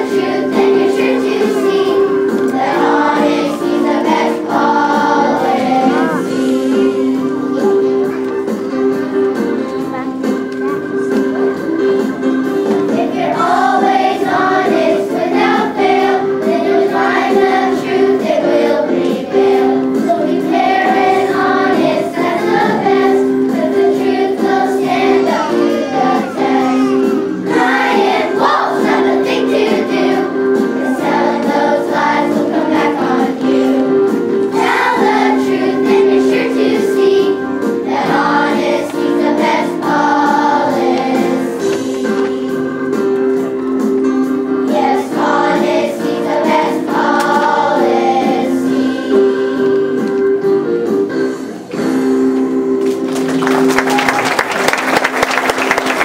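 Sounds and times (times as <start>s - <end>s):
children's choir singing: 0.0s - 52.4s
instrumental accompaniment: 0.0s - 56.0s.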